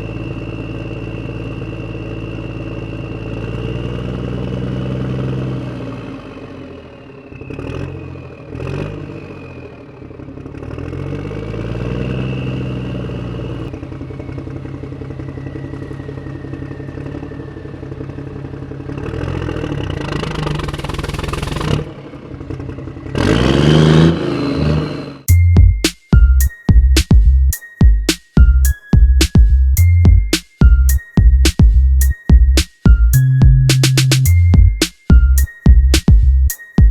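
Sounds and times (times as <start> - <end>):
music: 25.3 - 36.9.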